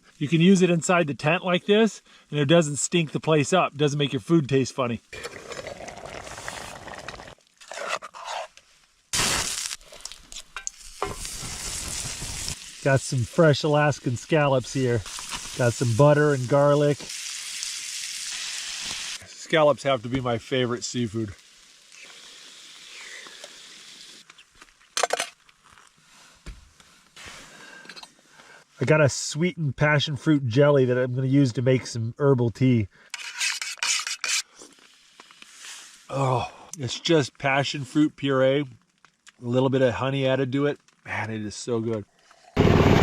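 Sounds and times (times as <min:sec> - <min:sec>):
hot oil sizzling in a pan: 0:09.2 - 0:24.2.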